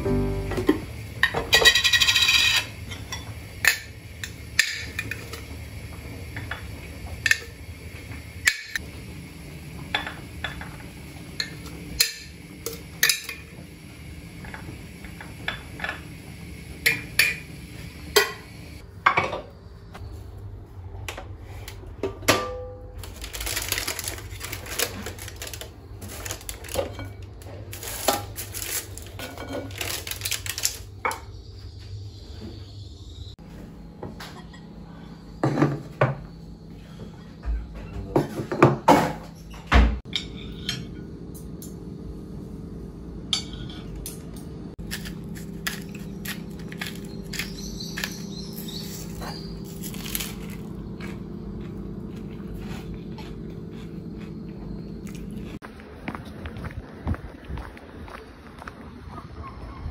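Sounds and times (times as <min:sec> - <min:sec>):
steady low hum: 0:00.0 - 0:23.4, 0:31.3 - 0:38.5, 0:40.1 - 0:59.2
dishes and utensils clinking: 0:00.4 - 0:05.4.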